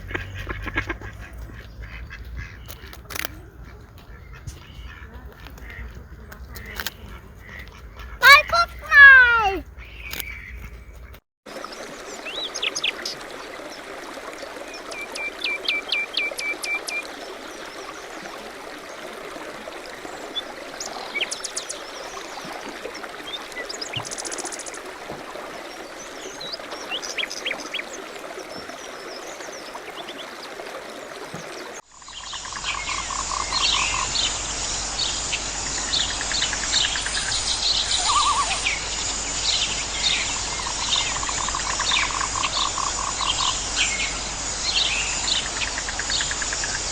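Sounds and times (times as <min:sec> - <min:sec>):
birds chirping: 0:00.0 - 0:11.2, 0:32.1 - 0:46.9.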